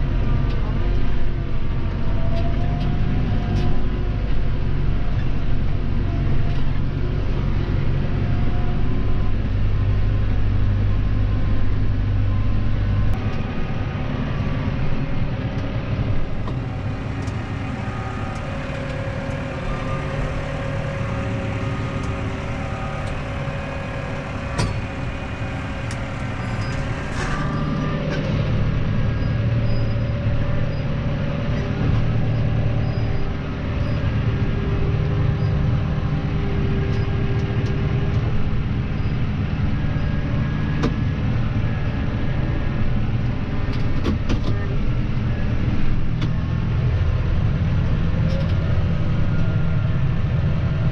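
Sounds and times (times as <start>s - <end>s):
deep low rumble: 0.0s - 50.9s
tractor engine running: 0.0s - 50.9s.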